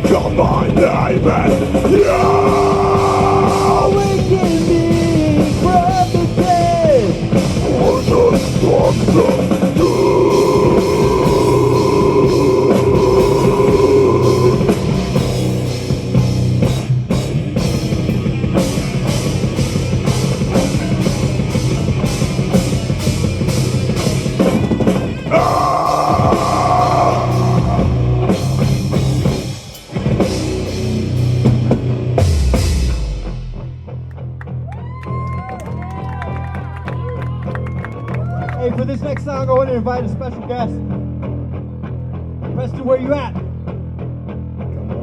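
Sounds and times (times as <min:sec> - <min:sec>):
heavy metal band playing: 0:00.0 - 0:34.0
pounding drum kit: 0:00.0 - 0:34.7.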